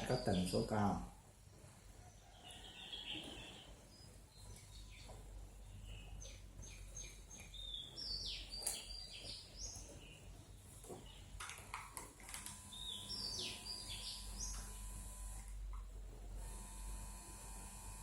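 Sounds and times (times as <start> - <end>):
birds chirping: 0.0 - 1.0, 2.0 - 11.7, 12.6 - 15.4.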